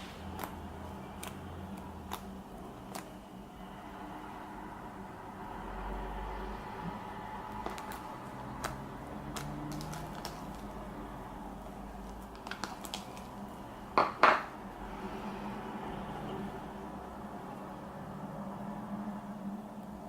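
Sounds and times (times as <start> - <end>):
utensil tapping container: 14.0 - 14.5.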